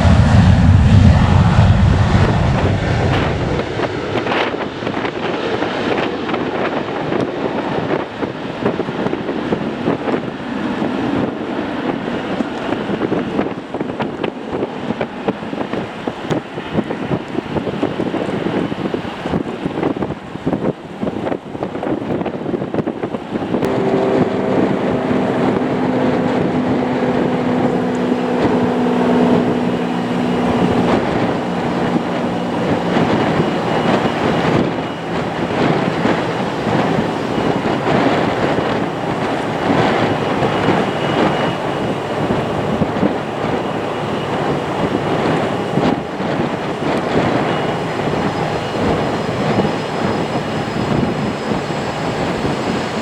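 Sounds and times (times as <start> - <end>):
low humming tones: 0.0 - 4.3, 23.5 - 53.0
jet engines at high power: 0.0 - 53.0.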